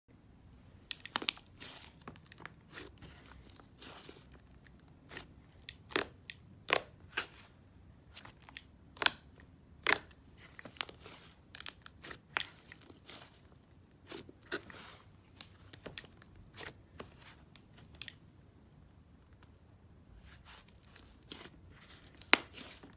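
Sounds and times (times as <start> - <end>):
slime clicking and popping: 5.6 - 7.0, 8.5 - 10.2.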